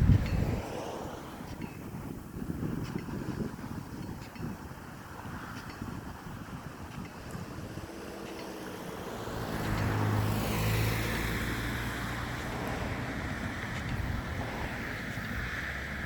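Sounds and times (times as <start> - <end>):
sprinkler water stream rushing: 0.0 - 16.0
low engine hum: 5.8 - 16.0.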